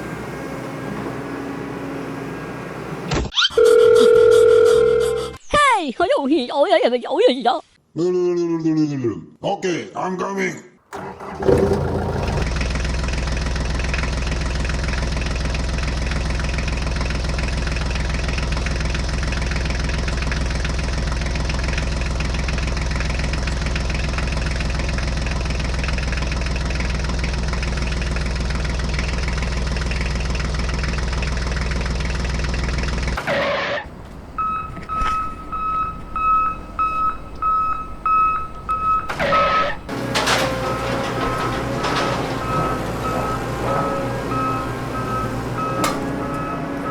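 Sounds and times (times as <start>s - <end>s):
engine running: 0.0s - 3.2s, 10.9s - 33.2s, 39.1s - 46.9s
knocks and rattles: 10.9s - 12.6s, 39.1s - 46.4s
reversing alarm beeping: 34.4s - 46.9s.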